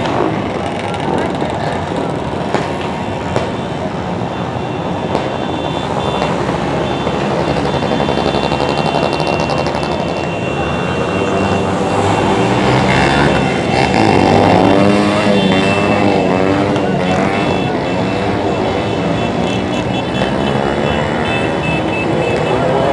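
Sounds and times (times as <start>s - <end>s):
motorcycle engines passing: 0.0s - 22.9s
motorcycle engine revving: 11.3s - 19.2s.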